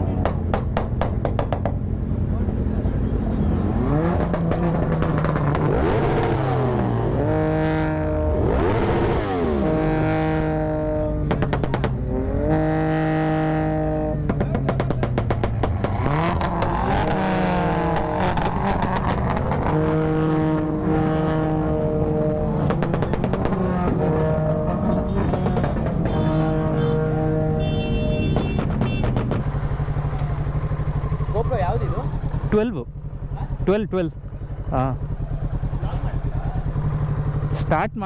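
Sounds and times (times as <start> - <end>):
vehicle engine revving hard: 3.2 - 29.5.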